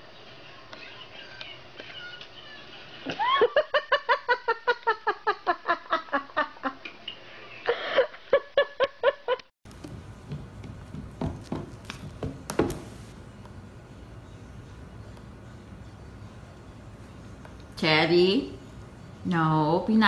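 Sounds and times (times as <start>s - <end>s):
person laughing: 3.0s - 6.9s.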